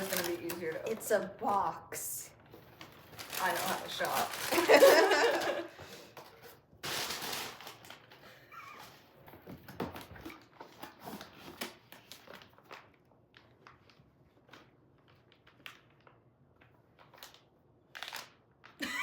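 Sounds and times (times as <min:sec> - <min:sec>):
cardboard rustling: 0:00.0 - 0:01.2, 0:02.5 - 0:05.7.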